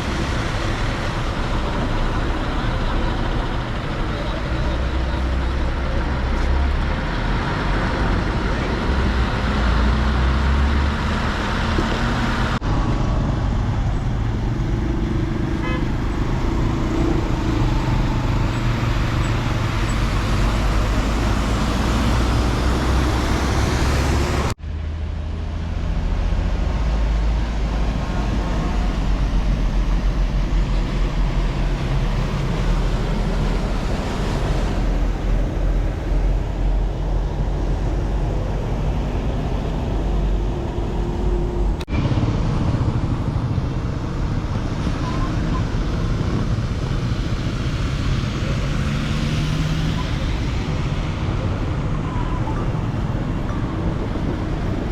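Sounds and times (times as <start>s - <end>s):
heavy vehicle engines rumbling: 0.0s - 54.9s
road noise: 0.0s - 54.9s
horns tooting: 15.5s - 17.4s.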